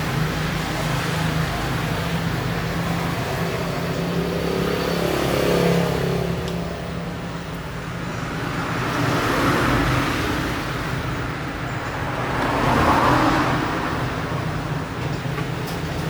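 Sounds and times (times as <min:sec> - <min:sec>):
vehicle engines running: 0:00.0 - 0:16.0
vehicle passing: 0:02.1 - 0:07.4, 0:08.3 - 0:15.6.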